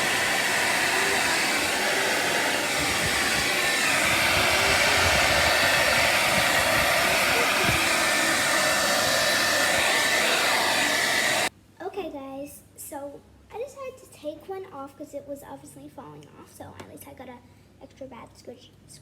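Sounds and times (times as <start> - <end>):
hair dryer blowing: 0.0 - 11.5.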